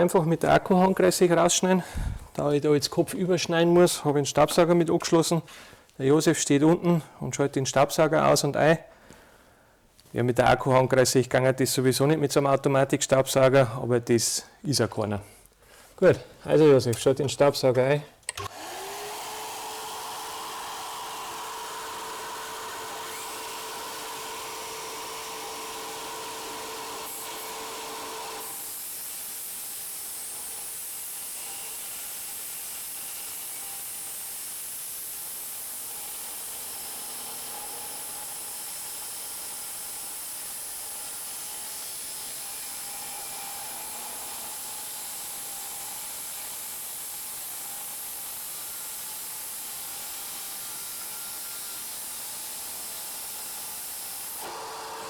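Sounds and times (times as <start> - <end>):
vacuum cleaner motor whine: 18.4 - 28.7, 52.8 - 55.0.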